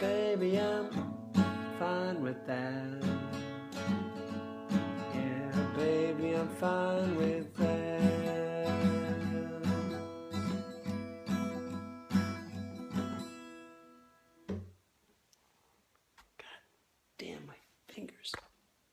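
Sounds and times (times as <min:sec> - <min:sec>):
acoustic guitar strumming: 0:00.0 - 0:14.8.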